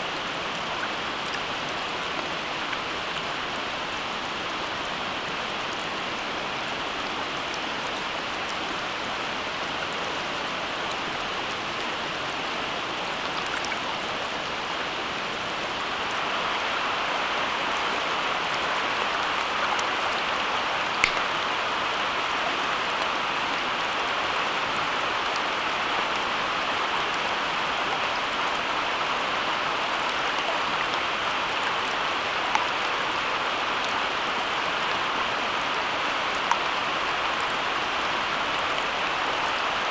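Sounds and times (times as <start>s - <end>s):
steady rain hiss: 0.0s - 39.9s
raindrop ticks: 21.0s - 21.5s.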